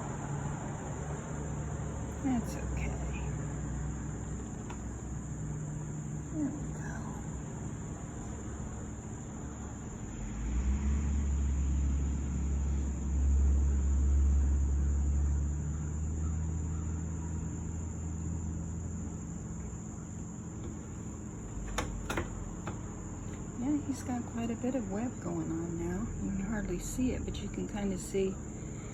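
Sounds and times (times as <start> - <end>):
crickets chirring: 0.0 - 28.9
vehicle passing: 9.9 - 15.4.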